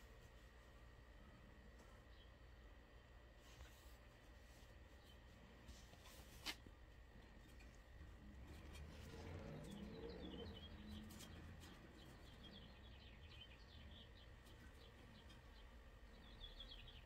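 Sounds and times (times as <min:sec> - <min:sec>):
faint bird chirps: 0:09.1 - 0:17.0.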